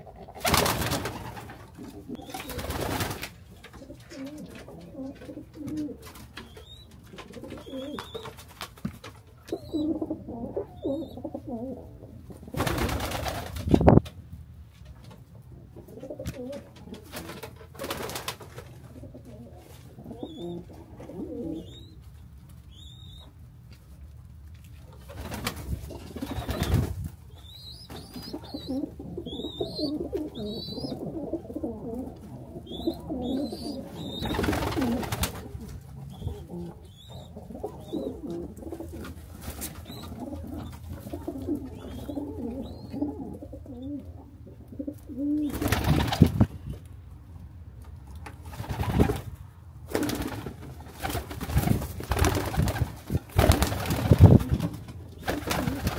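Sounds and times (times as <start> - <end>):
pigeons cooing: 0.0 - 8.6, 9.3 - 13.3, 15.6 - 18.0, 18.6 - 22.0, 25.0 - 46.5.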